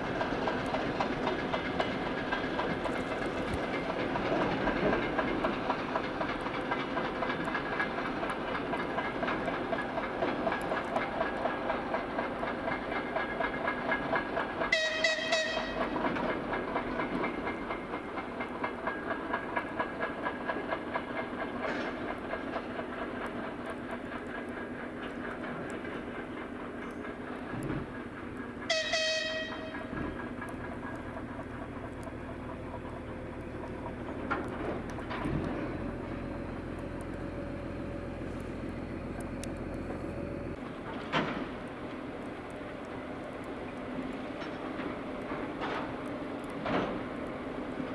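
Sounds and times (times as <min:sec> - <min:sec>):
diesel locomotive engine drone: 0:00.0 - 0:47.9
wheel clicks over rails: 0:00.0 - 0:47.9
locomotive whistle blasts: 0:14.7 - 0:16.0, 0:28.7 - 0:30.0.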